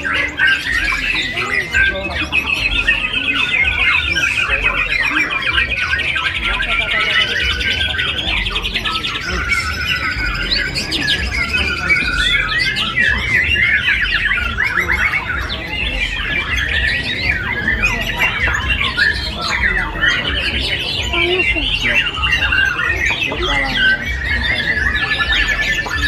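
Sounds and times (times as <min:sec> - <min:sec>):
songbirds singing: 0:00.0 - 0:26.0.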